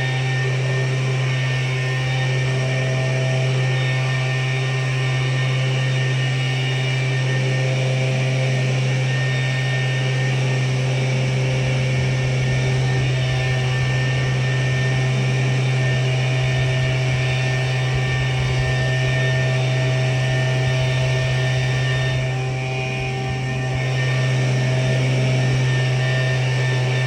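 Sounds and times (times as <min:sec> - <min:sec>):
tractor engine droning: 0:09.2 - 0:27.0.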